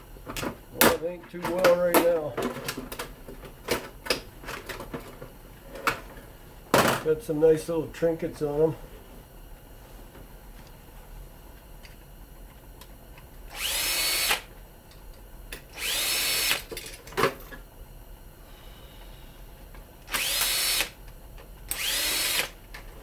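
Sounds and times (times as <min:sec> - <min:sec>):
power drill whining: 0:13.5 - 0:14.5, 0:15.7 - 0:16.7, 0:20.0 - 0:21.0, 0:21.7 - 0:22.6.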